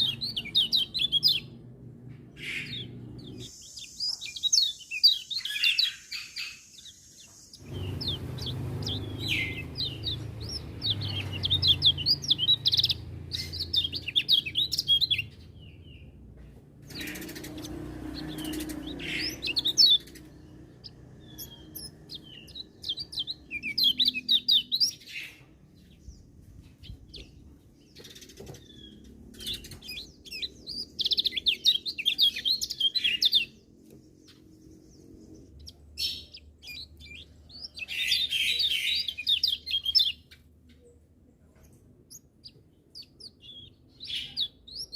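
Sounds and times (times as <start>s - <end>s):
small bird twittering: 0.0s - 1.6s, 2.4s - 16.0s, 16.8s - 25.9s, 26.8s - 40.8s, 42.1s - 44.9s.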